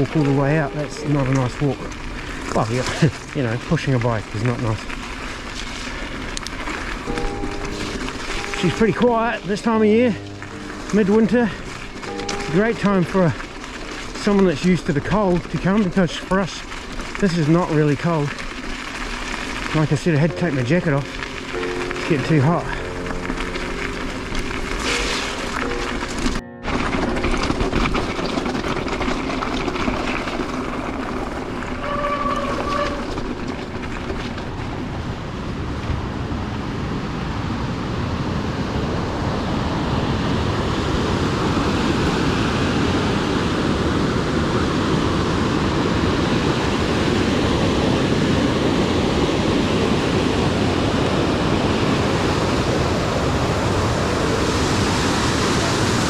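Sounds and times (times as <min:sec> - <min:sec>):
mountain bike on rough trail: 0:00.0 - 0:36.4, 0:40.3 - 0:56.0
rushing water: 0:00.0 - 0:36.7, 0:38.7 - 0:56.0
short high squeal: 0:31.7 - 0:33.7.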